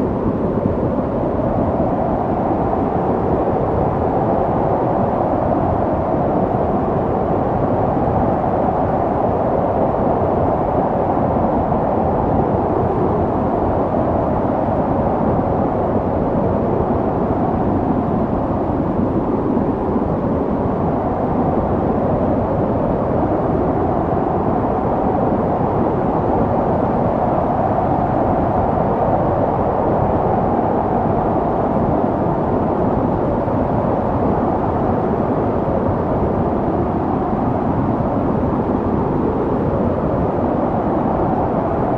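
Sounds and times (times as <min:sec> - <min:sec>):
wind blowing steadily: 0:00.0 - 0:41.9.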